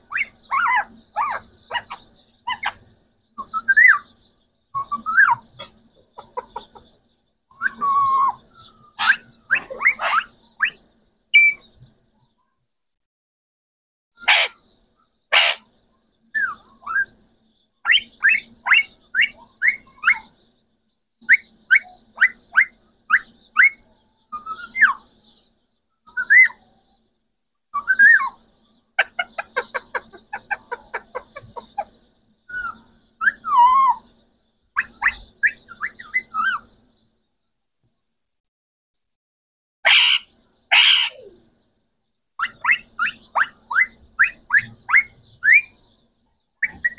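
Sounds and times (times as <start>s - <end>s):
parrots screeching: 0.1s - 2.8s, 9.0s - 10.4s, 14.2s - 14.6s, 15.3s - 15.6s, 39.8s - 41.3s
parrot whistled chirps: 27.8s - 28.4s, 42.4s - 45.8s.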